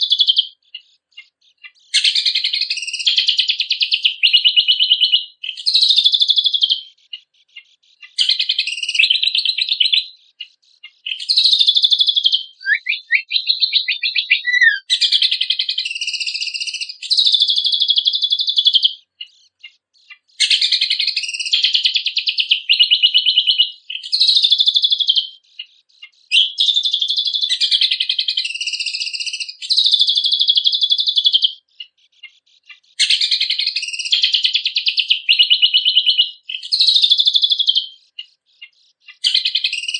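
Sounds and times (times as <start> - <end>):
songbird trilling and warbling: 0.0 - 39.9
bird falling whistles: 12.6 - 14.9.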